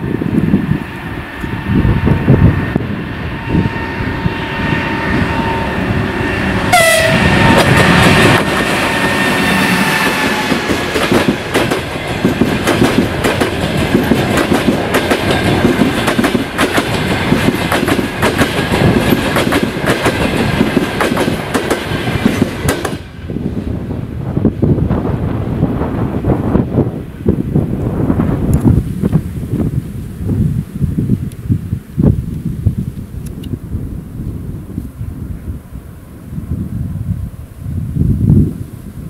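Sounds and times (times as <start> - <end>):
electric locomotive passing: 0.0 - 39.0
train wheels clickety-clack: 6.7 - 23.1.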